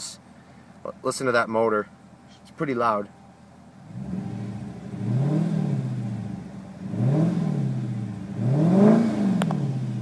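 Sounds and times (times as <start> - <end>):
car engine revving: 3.7 - 10.0.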